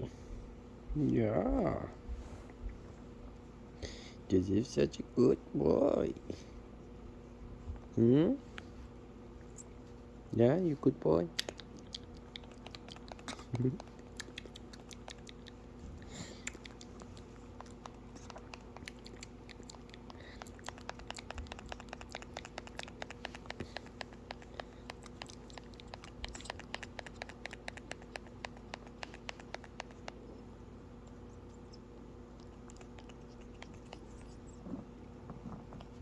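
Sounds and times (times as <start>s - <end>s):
steady low hum: 0.0s - 36.0s
parrot clicking and scratching: 11.4s - 30.4s, 31.0s - 36.0s.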